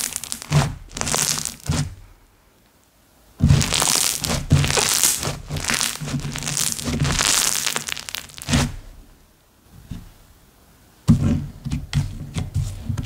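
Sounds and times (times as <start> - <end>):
slime crackling and popping: 0.0 - 1.9, 3.4 - 8.8.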